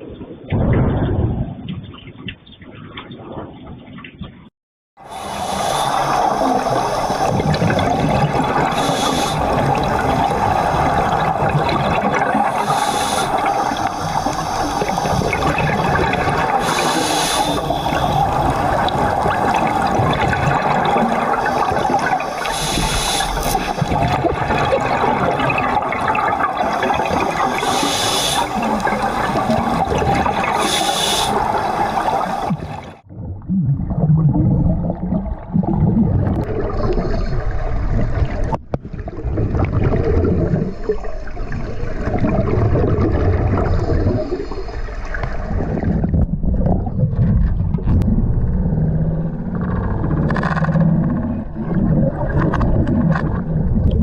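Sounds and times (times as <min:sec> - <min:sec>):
rushing water: 0:05.0 - 0:33.1
low rumbling roar: 0:46.3 - 0:54.0.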